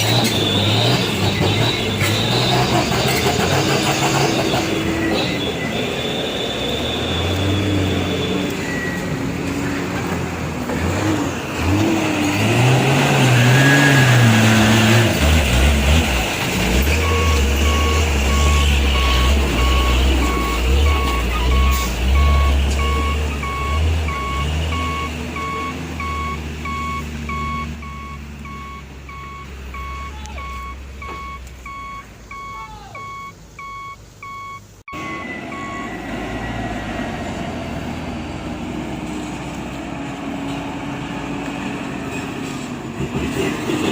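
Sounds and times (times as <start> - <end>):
truck engine running: 0.0 - 32.5
reversing alarm beeping: 4.0 - 9.2, 16.9 - 36.9.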